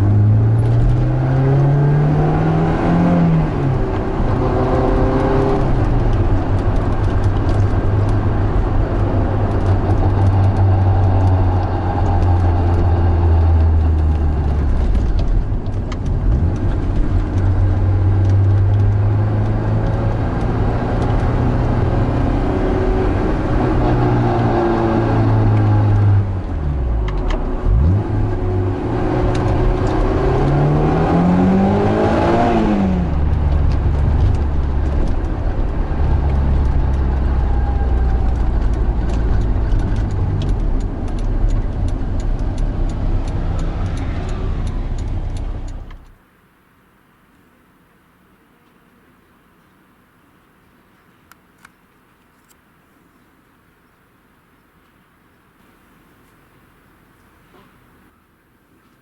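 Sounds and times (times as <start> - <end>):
car engine revving: 0.0 - 46.2.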